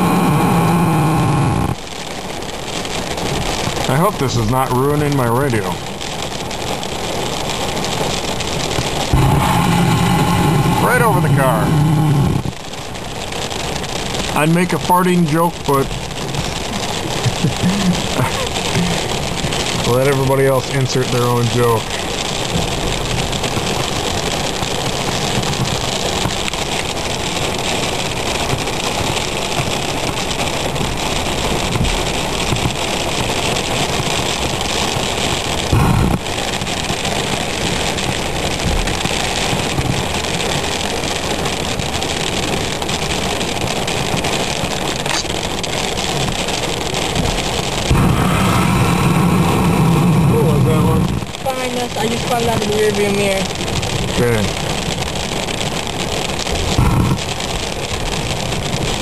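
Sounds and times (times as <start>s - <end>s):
heavy rain on a car: 0.0s - 59.0s
low thunder rumble: 8.9s - 12.6s, 30.9s - 44.3s, 44.9s - 59.0s
low thump: 38.6s - 39.2s.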